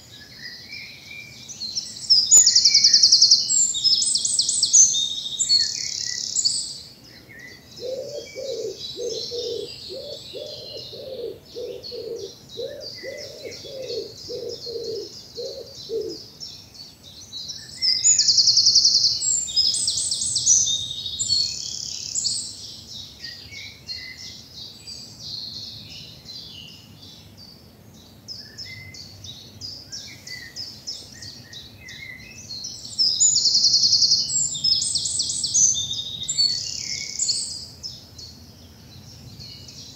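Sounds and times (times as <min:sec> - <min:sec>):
lower bird call: 0:00.0 - 0:16.3
songbirds chirping and trilling: 0:00.0 - 0:39.9.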